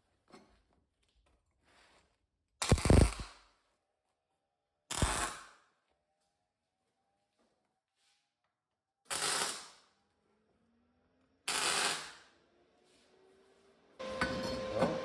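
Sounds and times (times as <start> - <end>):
crackling welding arc: 9.1 - 9.8, 11.5 - 12.1.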